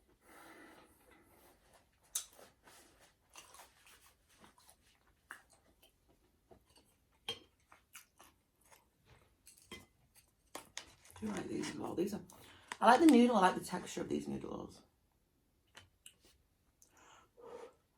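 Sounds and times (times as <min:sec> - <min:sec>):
chewing noodles with mouth clicks: 0:02.1 - 0:11.4.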